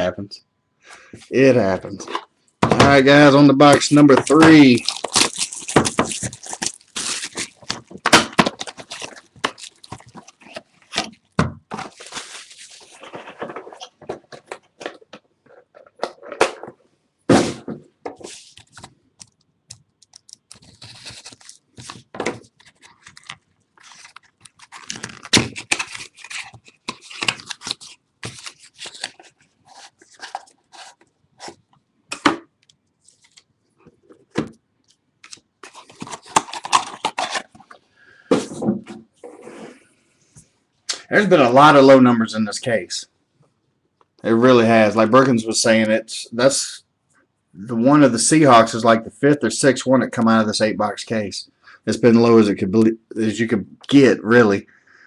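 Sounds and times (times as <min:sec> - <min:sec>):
plastic wrap tearing and crinkling: 0:03.6 - 0:14.0, 0:20.0 - 0:31.6, 0:35.2 - 0:37.7
cardboard crunching and scraping: 0:03.8 - 0:14.3, 0:20.5 - 0:31.6, 0:35.6 - 0:37.7
box and cards clicking: 0:35.2 - 0:37.6.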